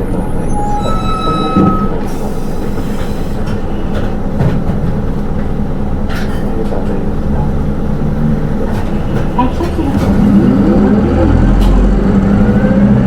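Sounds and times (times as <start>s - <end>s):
high-pitched squeal: 0.0s - 3.4s
bus engine and road rumble: 0.0s - 13.0s
air hissing: 1.9s - 3.9s.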